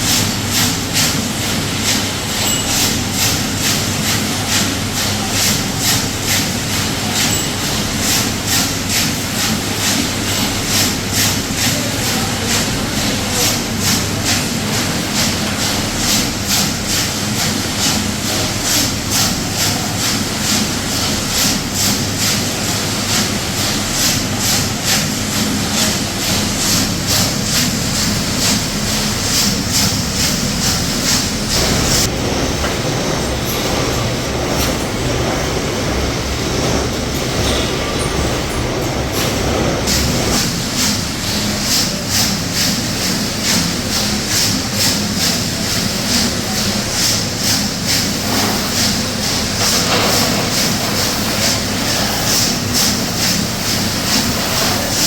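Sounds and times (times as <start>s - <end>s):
machinery rhythmic clatter: 0.0s - 55.0s
low machine rumble: 25.3s - 42.0s.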